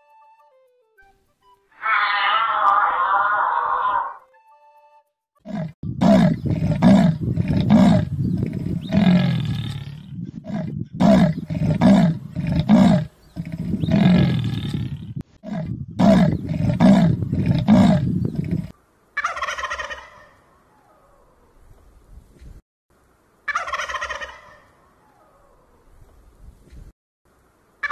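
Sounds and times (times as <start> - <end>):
cheetah calling: 1.5 - 4.4, 5.4 - 21.5
turkey gobbling: 19.2 - 21.0, 23.5 - 25.6.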